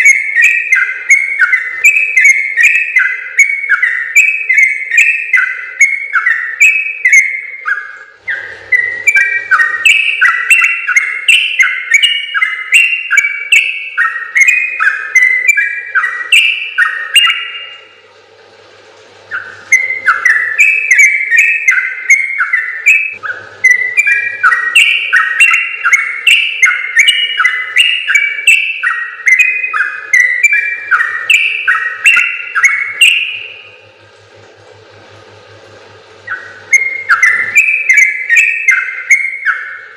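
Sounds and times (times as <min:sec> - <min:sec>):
bulbul singing rapid song: 0:00.0 - 0:18.0, 0:19.3 - 0:34.0, 0:36.2 - 0:39.9
faint steady hum: 0:00.0 - 0:39.9.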